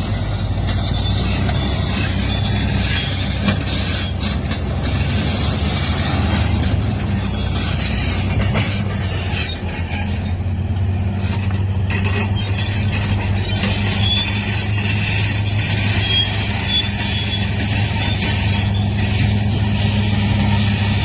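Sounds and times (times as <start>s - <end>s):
heavy machinery engines running: 0.0s - 21.0s
clanks and knocks: 2.8s - 14.6s.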